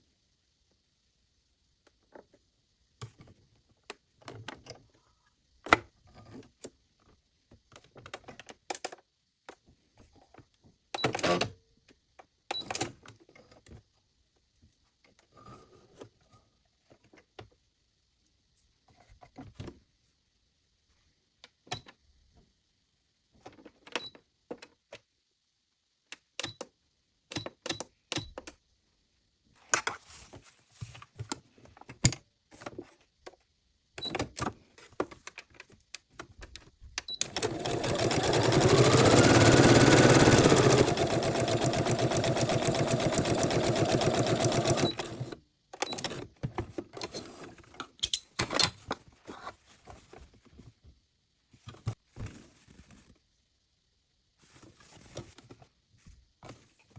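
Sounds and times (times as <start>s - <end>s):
sewing machine motor whining: 37.2s - 45.4s
sewing machine parts clicking: 37.2s - 46.2s.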